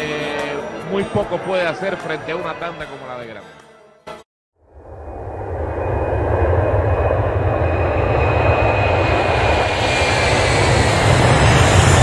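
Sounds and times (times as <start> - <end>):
high engine whine: 4.6 - 12.0
aircraft engine rumble: 4.7 - 12.0.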